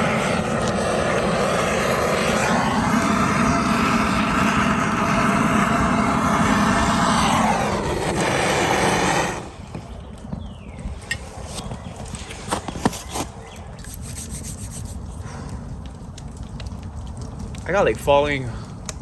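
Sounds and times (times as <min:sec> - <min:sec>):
faint ticks and crackles: 0:14.4 - 0:19.0.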